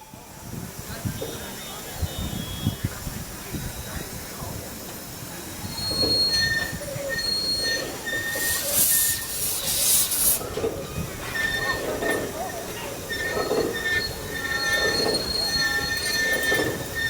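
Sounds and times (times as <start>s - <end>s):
steam train rolling on rails: 0.0s - 17.0s
steam hiss: 5.5s - 10.8s
wheel flange squeals: 5.6s - 17.0s.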